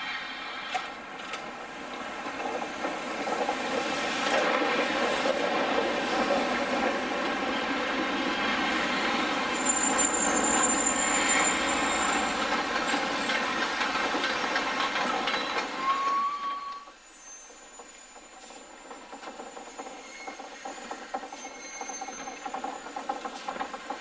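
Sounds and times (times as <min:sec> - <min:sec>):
train wheels clattering over rails: 0:00.3 - 0:16.2, 0:17.8 - 0:24.0
high wheel squeal: 0:08.4 - 0:13.1, 0:15.1 - 0:23.0.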